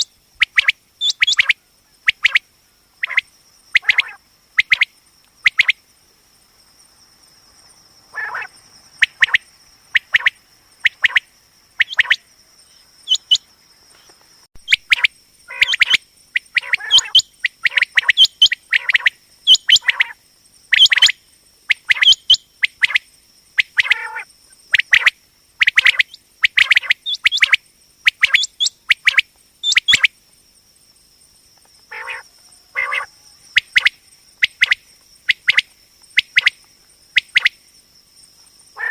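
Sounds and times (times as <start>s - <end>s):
quail calling: 0.0s - 2.4s, 3.0s - 4.9s, 8.1s - 9.4s, 11.8s - 12.2s, 13.0s - 13.4s, 14.6s - 23.0s, 23.6s - 30.1s, 31.9s - 36.5s.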